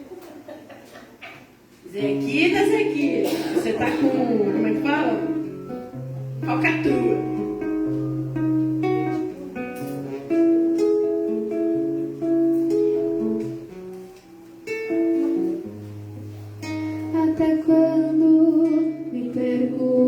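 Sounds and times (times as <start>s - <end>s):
acoustic guitar chords: 1.9s - 20.0s
person singing: 17.0s - 20.0s.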